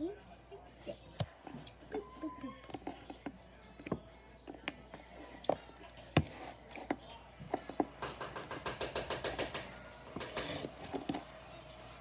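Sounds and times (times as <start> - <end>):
plastic containers tapping and knocking: 2.7 - 11.2.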